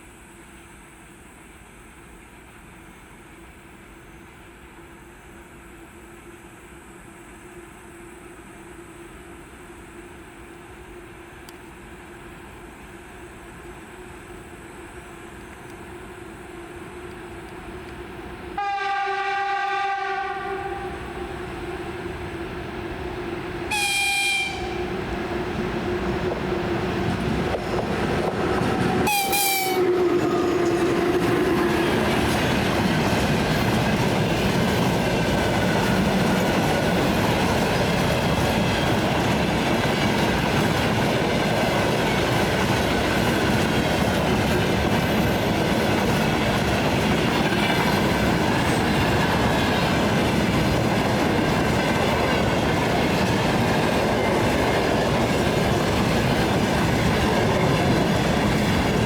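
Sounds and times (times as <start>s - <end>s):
freight train rolling past: 0.0s - 59.0s
train horn blast: 18.6s - 21.5s, 23.7s - 25.0s, 28.9s - 30.2s
wheels clacking over rail joints: 25.0s - 59.0s.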